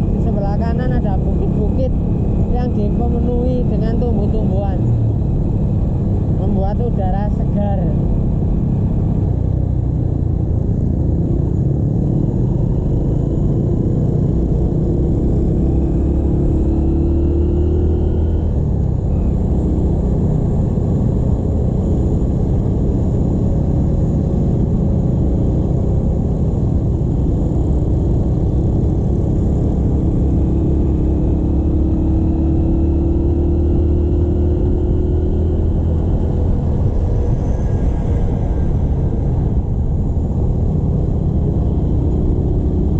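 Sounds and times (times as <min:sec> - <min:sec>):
motorcycle engine rumble: 0:00.0 - 0:42.9
wind on microphone: 0:33.6 - 0:42.9.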